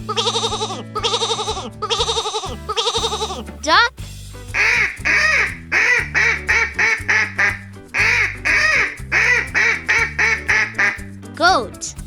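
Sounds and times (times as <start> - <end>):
background music with bass: 0.0 - 12.0
duck quacking: 4.6 - 11.0.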